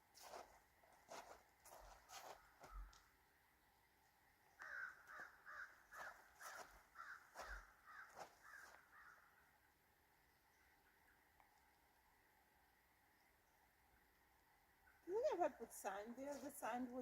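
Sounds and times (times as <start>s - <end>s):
bird harsh calls: 4.6s - 9.3s.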